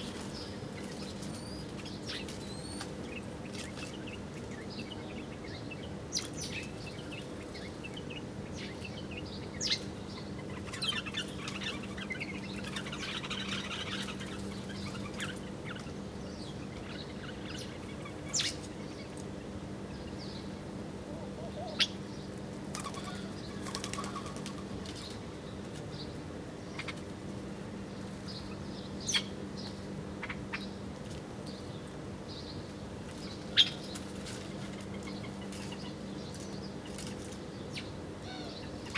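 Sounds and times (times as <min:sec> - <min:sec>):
small birds chirping: 0:00.0 - 0:19.2, 0:27.9 - 0:38.9
wingbeats fluttering: 0:22.7 - 0:25.2.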